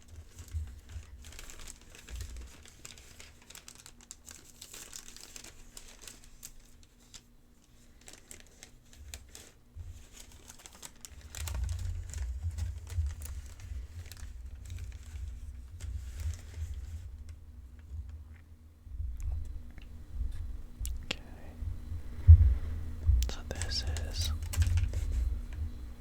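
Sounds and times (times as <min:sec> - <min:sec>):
paper crinkling: 0:00.0 - 0:18.4, 0:23.0 - 0:26.0
dull low thuds: 0:18.9 - 0:23.3.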